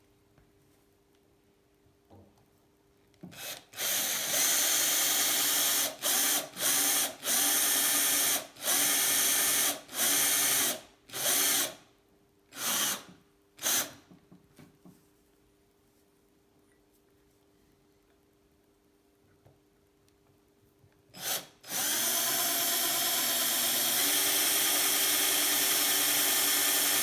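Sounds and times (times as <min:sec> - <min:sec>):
electric drill whining: 0:03.4 - 0:11.8, 0:21.2 - 0:27.0.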